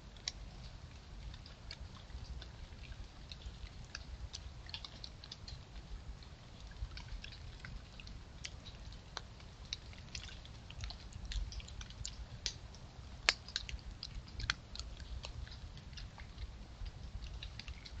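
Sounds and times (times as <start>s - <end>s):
animal chewing: 0.2s - 18.0s.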